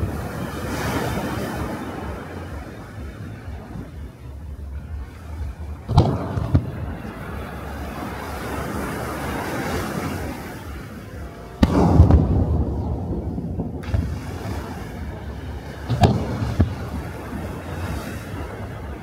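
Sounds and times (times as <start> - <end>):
steady background rush: 0.0 - 19.0
firework shell bursting with boom: 5.9 - 7.0, 11.6 - 14.8, 15.8 - 17.2
small firework bangs: 5.9 - 7.1, 11.6 - 17.2.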